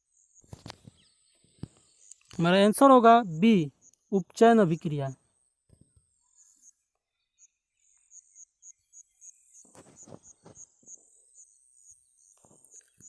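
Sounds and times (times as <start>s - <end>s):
cricket chirping: 0.0s - 5.2s, 6.4s - 13.0s.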